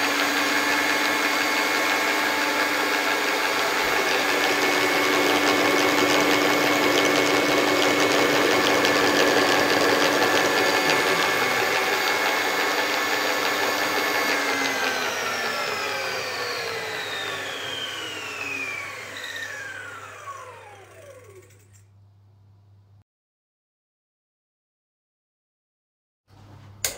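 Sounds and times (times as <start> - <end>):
food mixer motor running: 0.0 - 21.8.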